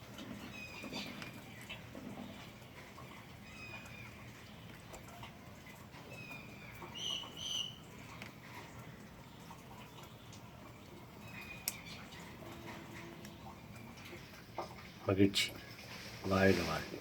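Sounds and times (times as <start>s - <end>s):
bird whistled calls: 6.9s - 7.8s.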